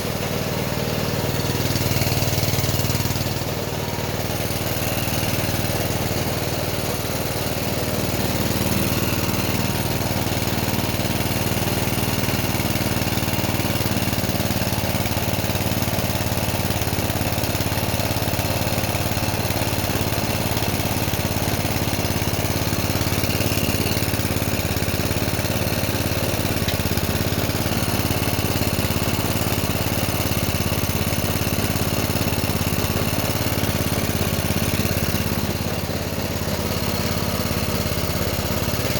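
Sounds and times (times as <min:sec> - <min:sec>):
small engine idling: 0:00.0 - 0:38.9.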